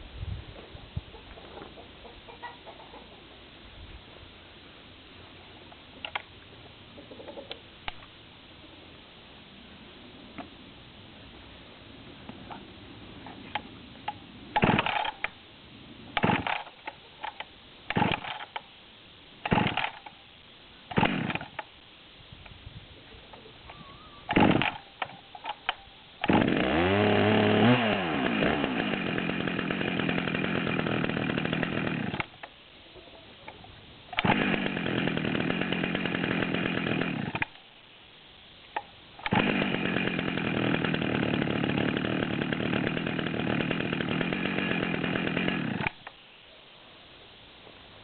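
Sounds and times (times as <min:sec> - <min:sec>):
chainsaw starting and revving: 0:14.6 - 0:15.2, 0:16.2 - 0:16.7, 0:17.9 - 0:18.4, 0:19.5 - 0:20.0, 0:20.9 - 0:21.6, 0:24.3 - 0:24.8, 0:26.2 - 0:32.3, 0:34.2 - 0:37.6, 0:39.2 - 0:46.0.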